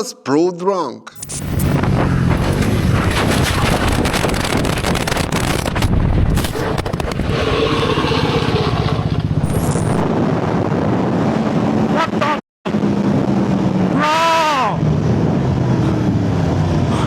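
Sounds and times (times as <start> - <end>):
motorcycle engine running hard: 1.4 - 12.1.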